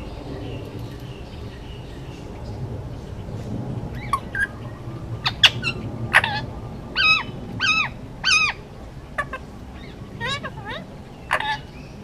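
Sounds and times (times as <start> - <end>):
drawn-out parakeet calls: 3.9 - 12.0
parakeet chirps: 9.2 - 12.0.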